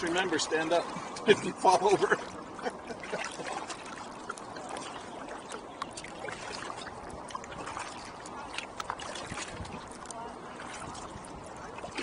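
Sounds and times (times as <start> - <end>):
paddles splashing in water: 0.0 - 12.0
water washing: 0.0 - 12.0.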